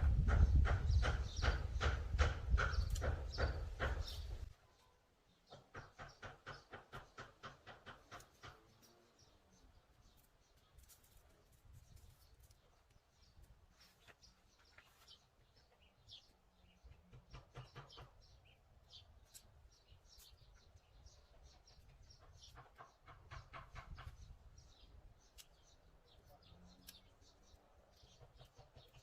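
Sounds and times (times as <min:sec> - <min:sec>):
birds chirping: 0:00.1 - 0:29.0
rapid rattling bird call: 0:00.2 - 0:04.5, 0:05.5 - 0:08.8, 0:17.0 - 0:18.6, 0:21.4 - 0:24.8.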